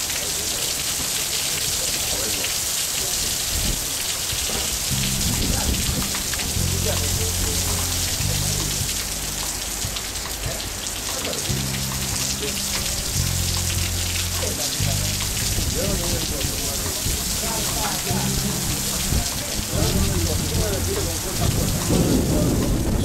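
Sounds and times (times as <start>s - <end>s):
heavy rain pouring: 0.0s - 23.0s
low rumble: 4.9s - 10.8s, 11.6s - 23.0s.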